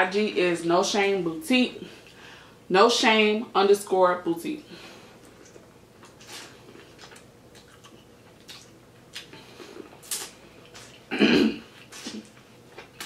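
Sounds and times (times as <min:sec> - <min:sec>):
person biting and chewing corn: 0:05.2 - 0:13.0.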